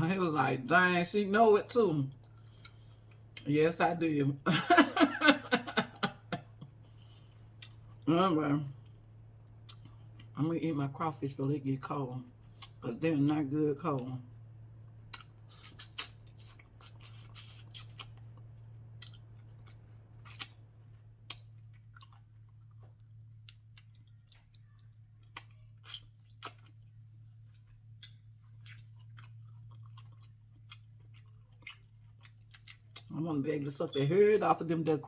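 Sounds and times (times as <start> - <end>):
steady low hum: 0.0 - 35.0
chewing: 6.8 - 8.0, 15.0 - 33.1.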